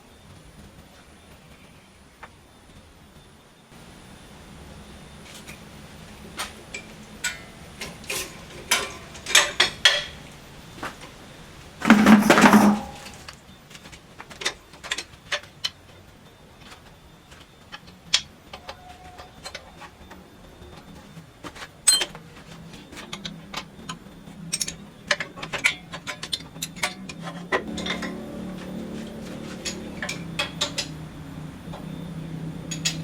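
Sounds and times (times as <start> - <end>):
metal tools clinking and knocking: 6.7 - 10.3, 11.8 - 13.3, 20.7 - 32.0, 32.6 - 33.0
loud metal clatter: 11.8 - 13.3.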